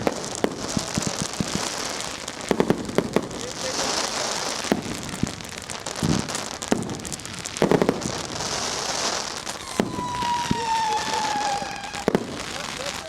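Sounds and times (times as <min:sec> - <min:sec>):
fireworks banging and crackling: 0:00.0 - 0:13.0
whistling firework falling in pitch: 0:06.0 - 0:13.0.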